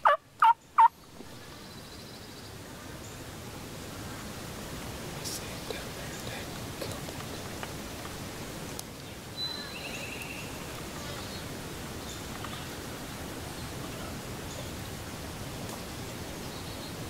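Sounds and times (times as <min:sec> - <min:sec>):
constant noise hiss: 0:00.0 - 0:17.0
faint bird chirps: 0:09.3 - 0:12.8.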